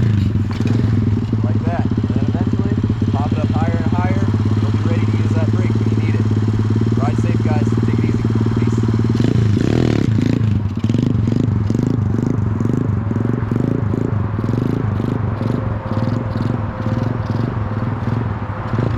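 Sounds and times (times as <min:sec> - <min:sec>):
motorcycle engine idling: 0:00.0 - 0:18.9.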